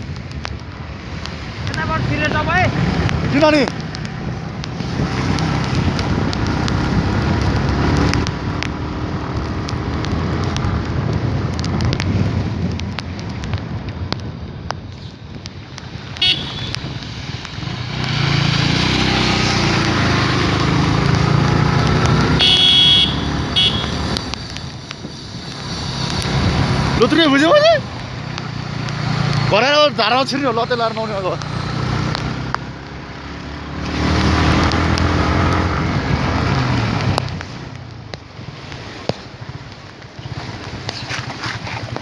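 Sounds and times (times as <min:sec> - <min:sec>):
wind and road noise: 0:00.0 - 0:42.0
vehicle horn beeping: 0:16.2 - 0:16.7, 0:22.4 - 0:24.0.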